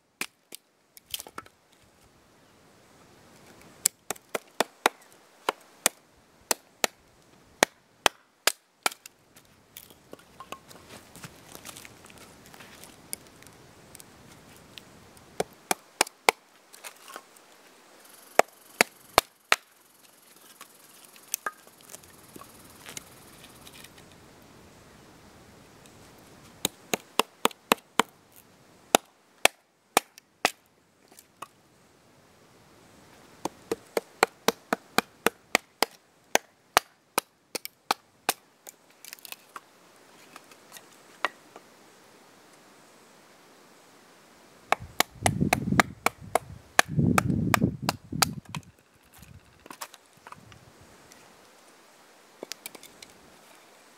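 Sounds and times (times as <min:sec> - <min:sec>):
axe chopping firewood: 0:03.8 - 0:07.0, 0:07.6 - 0:09.1, 0:15.4 - 0:16.4, 0:21.4 - 0:21.7, 0:26.6 - 0:28.1, 0:28.9 - 0:30.6, 0:33.4 - 0:38.4, 0:44.7 - 0:48.6.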